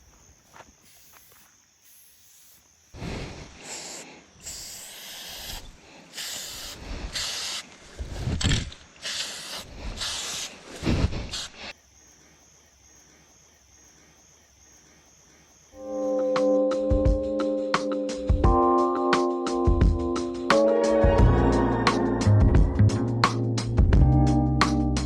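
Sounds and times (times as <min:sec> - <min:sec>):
spray paint can hissing: 0:00.8 - 0:02.6, 0:03.7 - 0:07.8, 0:09.0 - 0:11.7.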